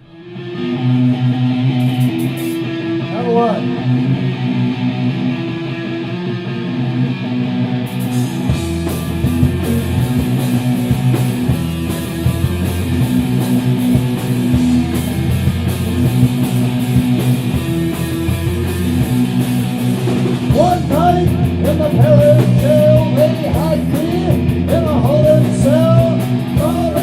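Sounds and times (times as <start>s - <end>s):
bass riff: 0.0s - 27.0s
distorted electric guitar: 0.0s - 27.0s
drums and cymbals: 1.7s - 2.8s, 7.9s - 27.0s.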